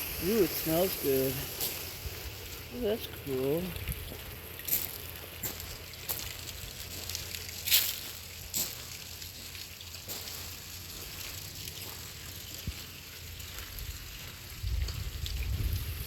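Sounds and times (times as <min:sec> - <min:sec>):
steady hiss: 0:00.0 - 0:09.3
wind rumble on microphone: 0:13.7 - 0:16.0.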